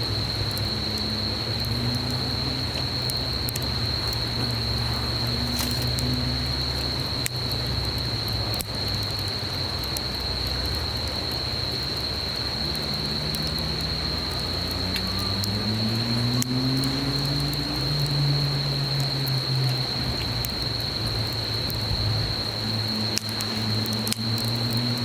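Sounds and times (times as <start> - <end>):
campfire crackling and popping: 0.0 - 25.0
insect trilling: 0.1 - 8.6.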